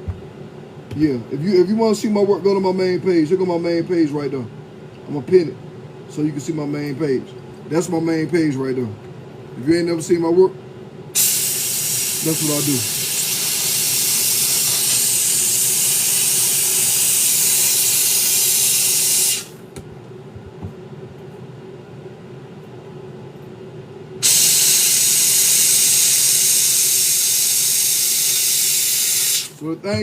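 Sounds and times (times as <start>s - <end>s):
heat gun blowing: 11.2s - 19.6s, 24.2s - 29.6s.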